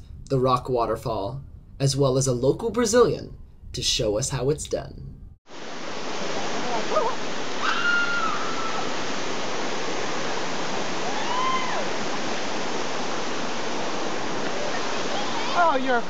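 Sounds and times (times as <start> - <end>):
waterfall rushing: 5.5 - 16.0.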